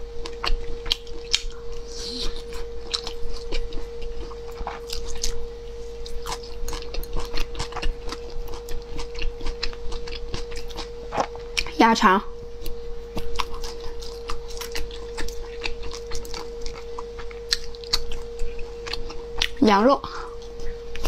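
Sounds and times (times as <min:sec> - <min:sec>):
steady hum: 0:00.0 - 0:21.0
chewing and biting food: 0:00.2 - 0:05.4, 0:06.0 - 0:11.8, 0:12.6 - 0:19.7, 0:20.3 - 0:21.0.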